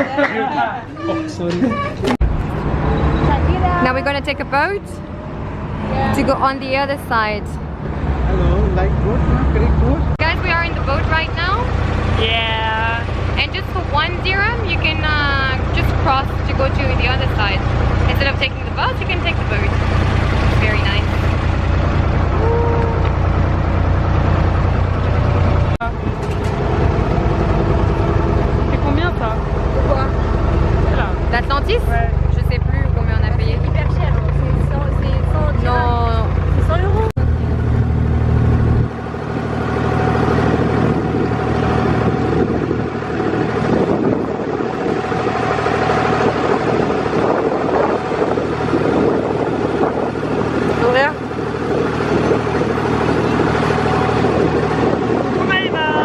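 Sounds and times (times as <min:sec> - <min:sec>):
boat engine humming: 0:00.0 - 0:56.0
water noise: 0:01.0 - 0:56.0
wind noise: 0:13.0 - 0:56.0.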